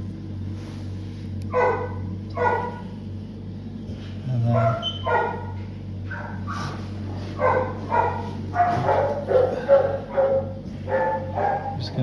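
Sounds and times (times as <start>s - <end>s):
steady low hum: 0.0s - 12.0s
dog barking and yipping: 1.5s - 2.9s, 4.5s - 12.0s.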